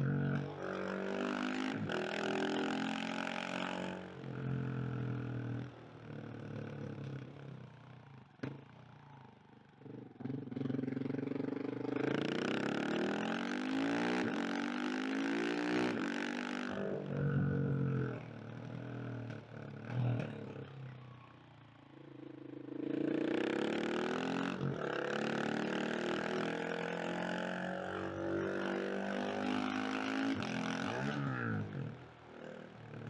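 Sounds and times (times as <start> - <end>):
motorcycle engine revving: 21.9 - 33.0.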